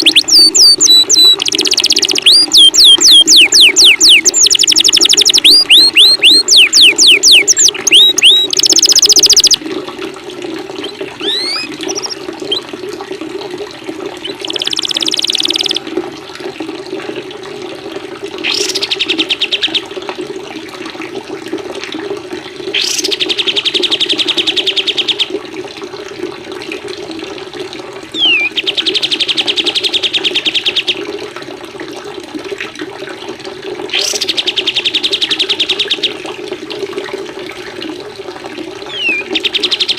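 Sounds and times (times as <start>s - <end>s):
songbirds singing: 0.0s - 9.6s, 10.8s - 12.6s, 14.2s - 15.8s, 18.5s - 19.8s, 28.2s - 30.9s, 38.9s - 39.9s
running water: 0.0s - 39.9s
downward-swept whistles: 28.2s - 28.5s, 38.9s - 39.3s.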